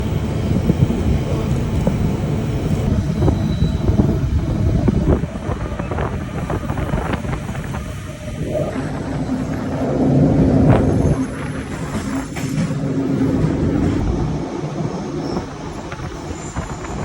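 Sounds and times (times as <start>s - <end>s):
train rumbling: 0.0s - 17.0s
wind buffeting microphone: 0.0s - 17.0s.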